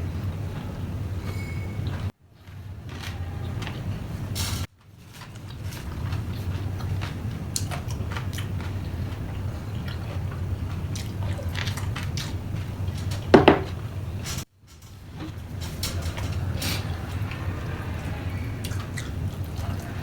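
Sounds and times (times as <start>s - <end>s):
chewing and mouth smacks: 5.2s - 13.3s.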